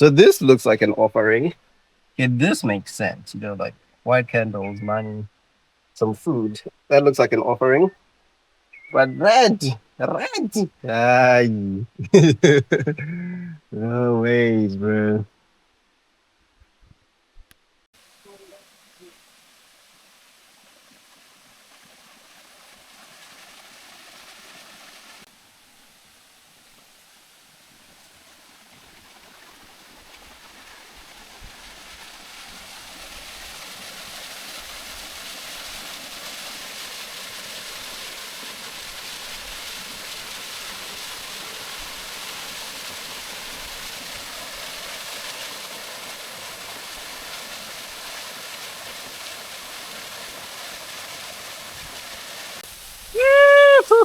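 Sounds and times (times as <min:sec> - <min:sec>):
waterfall rushing: 0:09.0 - 0:11.5, 0:12.1 - 0:13.0, 0:44.7 - 0:54.0.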